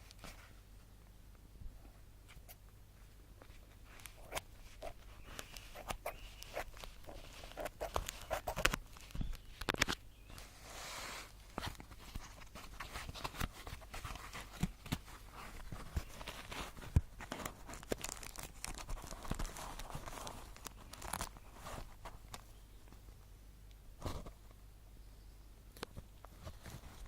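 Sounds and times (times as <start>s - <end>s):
plastic rustling: 3.4s - 23.0s.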